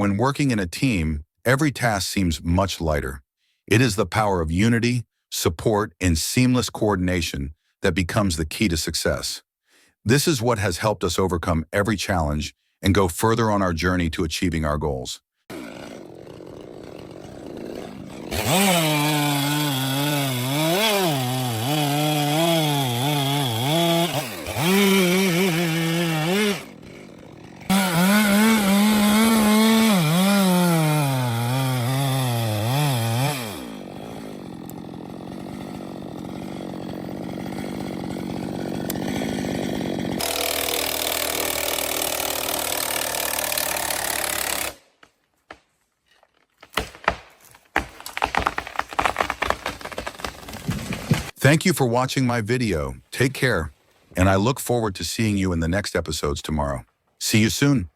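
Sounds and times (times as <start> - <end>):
chainsaw engine revving: 15.5 - 44.8.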